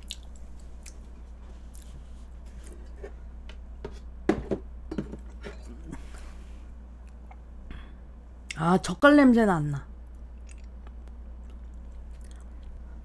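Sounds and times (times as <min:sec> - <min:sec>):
chewing and mouth noises: 0:00.0 - 0:02.0, 0:10.1 - 0:12.8
steady low hum: 0:00.0 - 0:13.0.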